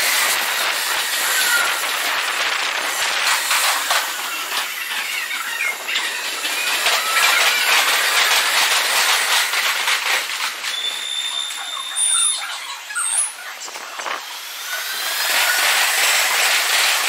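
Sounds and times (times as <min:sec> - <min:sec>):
train wheels clicking over rail joints: 0:00.0 - 0:11.3, 0:14.0 - 0:17.0
train wheels squealing: 0:01.2 - 0:01.8, 0:10.6 - 0:13.6.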